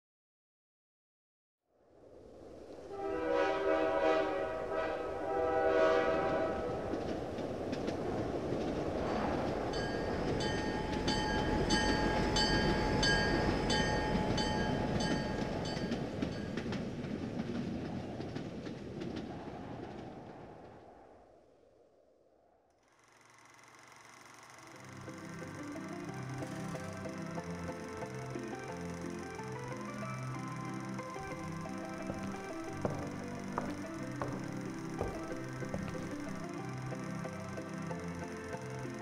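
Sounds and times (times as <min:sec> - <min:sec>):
train rumble: 0:02.7 - 0:21.0, 0:23.5 - 0:39.0
train whistle chord: 0:02.9 - 0:06.9, 0:24.6 - 0:39.0
rhythmic metallic ringing: 0:09.6 - 0:16.7, 0:23.7 - 0:39.0.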